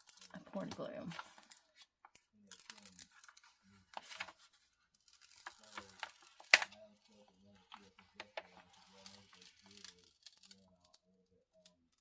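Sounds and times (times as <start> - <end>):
packaging clicks and rustles: 0.0 - 11.0
faint background talk: 2.1 - 12.0.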